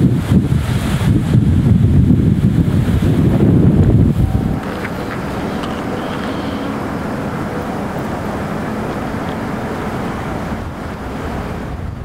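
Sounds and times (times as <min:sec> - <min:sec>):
high-speed train passing: 0:02.6 - 0:12.0
faint whining tones: 0:03.1 - 0:12.0.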